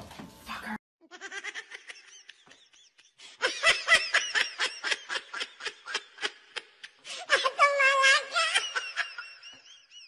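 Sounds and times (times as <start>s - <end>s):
person laughing: 1.0s - 7.6s.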